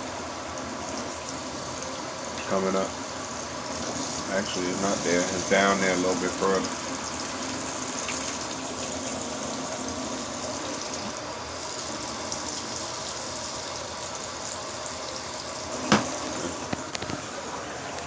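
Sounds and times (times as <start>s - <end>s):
water running into tub: 0.0s - 18.0s
sharp knock: 15.9s - 16.2s.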